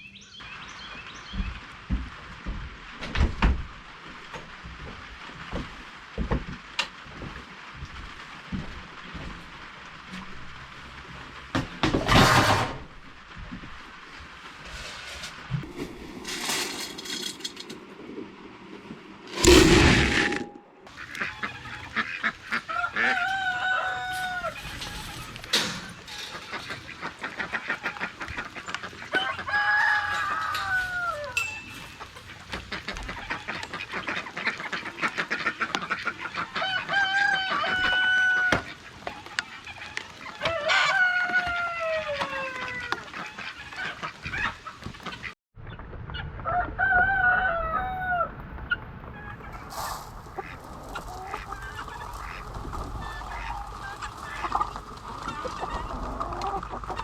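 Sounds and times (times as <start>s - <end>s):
roosters crowing: 21.2s - 33.6s, 36.4s - 39.2s, 39.9s - 43.9s, 46.5s - 48.4s, 49.2s - 57.0s.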